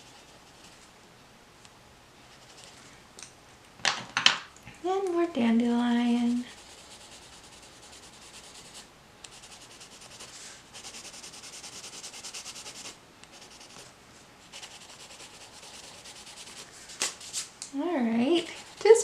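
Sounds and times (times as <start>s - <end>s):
colored pencil scratching paper: 0.0s - 0.9s, 6.3s - 13.8s, 14.5s - 17.4s, 18.4s - 19.0s.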